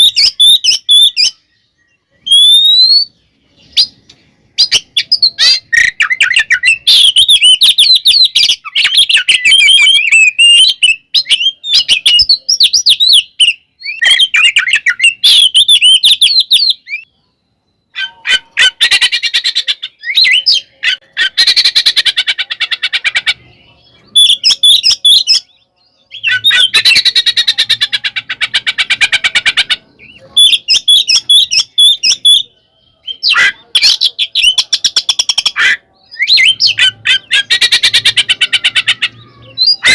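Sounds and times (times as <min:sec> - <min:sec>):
bird whistling song: 0:00.0 - 0:39.9
bird harsh chattering: 0:04.6 - 0:17.1, 0:17.9 - 0:25.5, 0:26.1 - 0:39.9.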